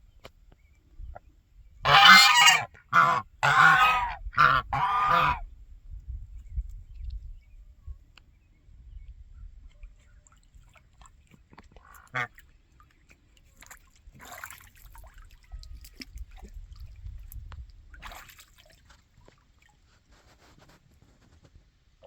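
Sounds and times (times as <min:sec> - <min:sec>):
duck call: 0:01.8 - 0:05.4
ducks splashing in water: 0:01.9 - 0:05.4, 0:09.8 - 0:21.2.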